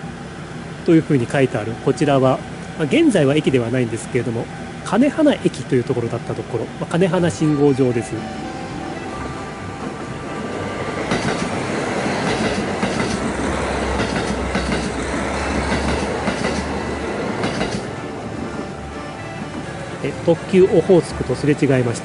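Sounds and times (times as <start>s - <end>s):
diesel engines droning: 0.0s - 22.0s
train wheels clattering over joints: 9.8s - 18.0s.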